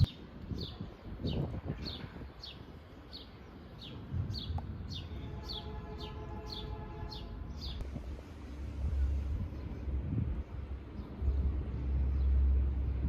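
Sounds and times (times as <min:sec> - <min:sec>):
bird chirping: 0:00.0 - 0:08.2
low outdoor rumble: 0:00.0 - 0:13.0.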